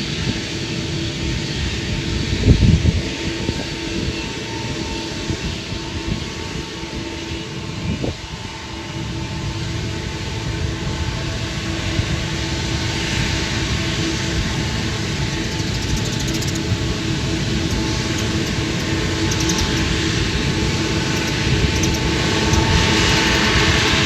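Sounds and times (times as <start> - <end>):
jet engine rumble and whine: 0.0 - 24.0
wind buffeting microphone: 0.0 - 24.0.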